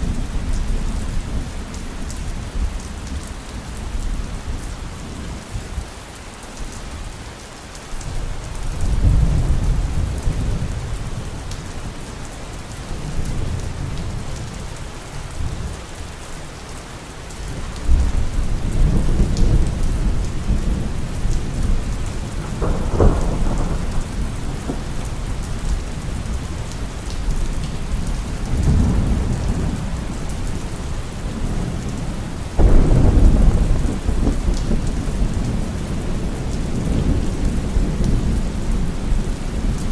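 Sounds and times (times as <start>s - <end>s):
heavy rain: 0.0s - 39.9s
thunder rumbling: 17.5s - 39.9s.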